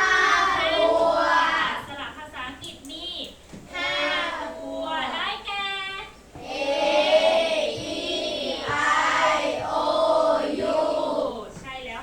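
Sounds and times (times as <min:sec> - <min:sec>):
children chanting in unison: 0:00.0 - 0:01.8, 0:03.7 - 0:05.2, 0:06.4 - 0:11.5.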